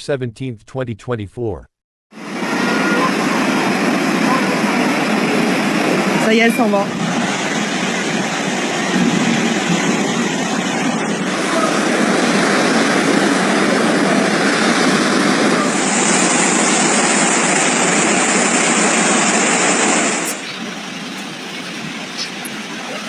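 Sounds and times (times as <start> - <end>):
floodwater rushing: 15.7 - 23.0.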